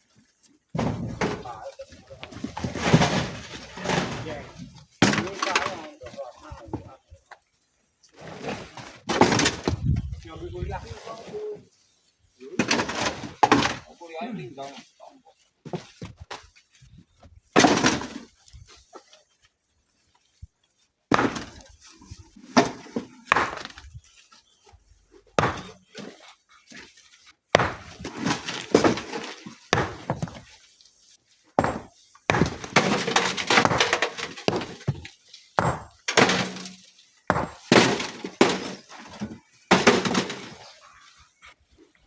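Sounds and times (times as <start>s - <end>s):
rocks clattering into truck bed: 0.8s - 1.6s, 2.2s - 5.9s, 8.3s - 10.0s, 17.6s - 18.3s, 25.4s - 25.8s, 27.6s - 30.5s, 31.6s - 40.7s.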